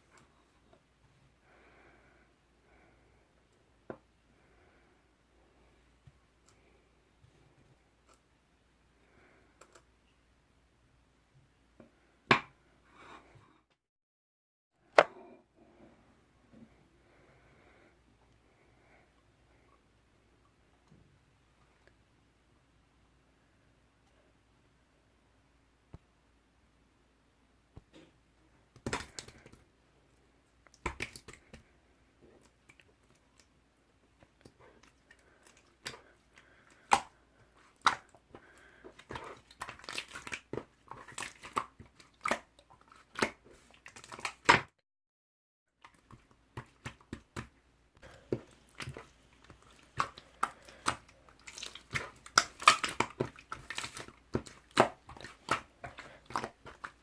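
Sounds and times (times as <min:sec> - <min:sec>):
slime squished by hand: 0:48.1 - 0:57.0.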